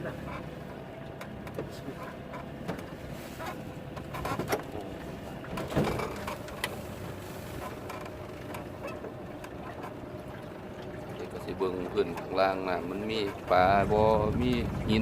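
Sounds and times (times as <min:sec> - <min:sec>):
boat engine running: 0:00.0 - 0:15.0
knocks and clatters on board: 0:01.2 - 0:06.8.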